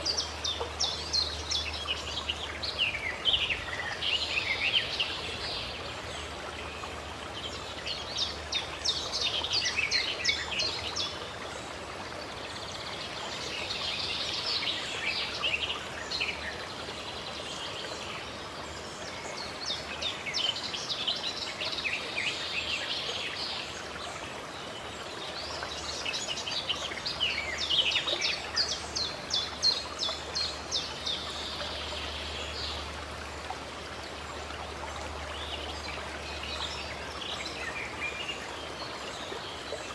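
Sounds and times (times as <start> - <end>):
running water: 0.0 - 39.9
songbirds chirping: 0.0 - 39.9.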